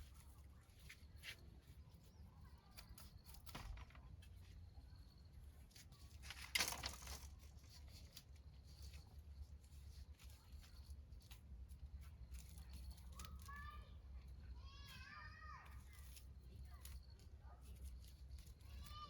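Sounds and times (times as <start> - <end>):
faint rustles and clicks: 0.0 - 19.0.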